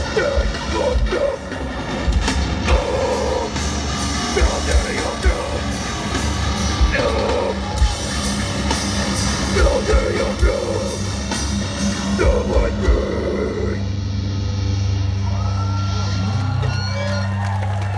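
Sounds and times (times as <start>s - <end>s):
hard-hit drums: 0.0s - 13.9s
distorted guitars: 0.0s - 17.3s
shouted vocals: 4.2s - 11.0s, 15.1s - 17.9s.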